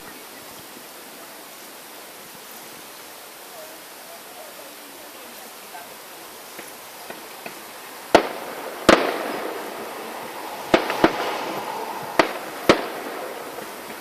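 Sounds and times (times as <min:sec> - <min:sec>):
fireworks crackling: 0:04.1 - 0:14.0
fireworks bangs: 0:06.5 - 0:14.0.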